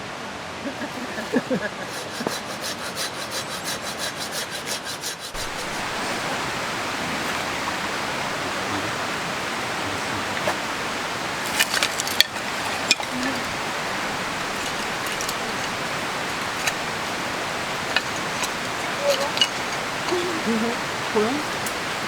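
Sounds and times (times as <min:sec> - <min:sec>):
rhythmic scraping on wood: 0:01.2 - 0:06.4, 0:11.3 - 0:22.0
steady rushing noise: 0:05.2 - 0:22.0.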